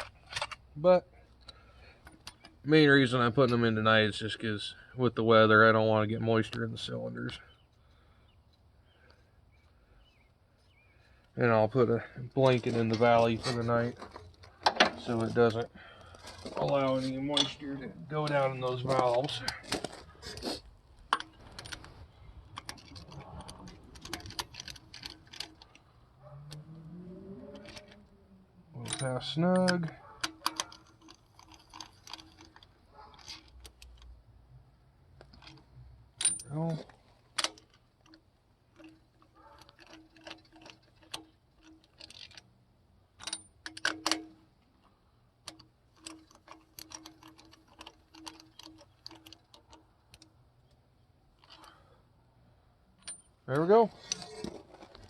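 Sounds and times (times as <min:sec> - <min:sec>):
metal tools tapping and clicking: 0:14.0 - 0:19.9, 0:21.0 - 0:21.9, 0:28.8 - 0:34.1, 0:36.2 - 0:42.5, 0:43.2 - 0:50.8
socket ratchet clicking: 0:43.2 - 0:44.4, 0:45.4 - 0:50.4.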